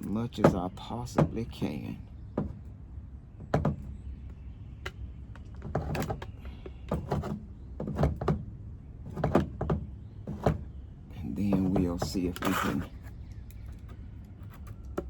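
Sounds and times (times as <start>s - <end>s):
handling clicks knocks and scrapes: 4.8s - 15.0s.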